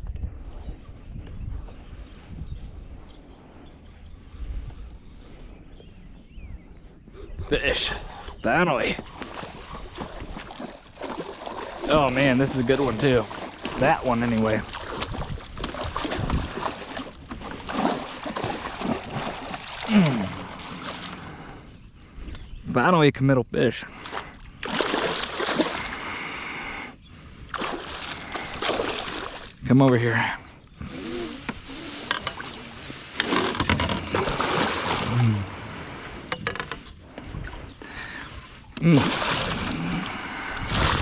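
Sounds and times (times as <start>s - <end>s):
water splashing: 8.9s - 21.6s, 24.0s - 26.2s, 27.5s - 29.6s, 32.1s - 36.6s, 38.8s - 41.0s.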